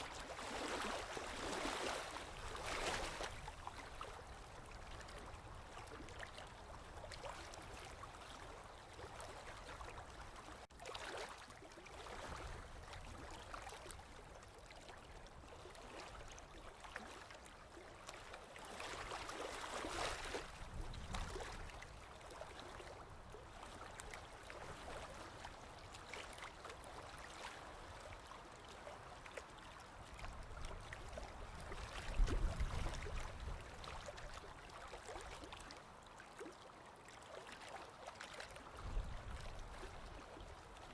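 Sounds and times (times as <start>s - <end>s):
sea water lapping: 0.0s - 40.9s
water trickling and gurgling: 0.0s - 40.9s.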